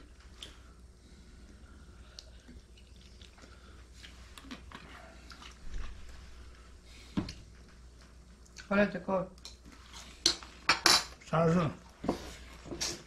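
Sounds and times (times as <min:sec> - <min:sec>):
chewing: 0:01.5 - 0:06.1.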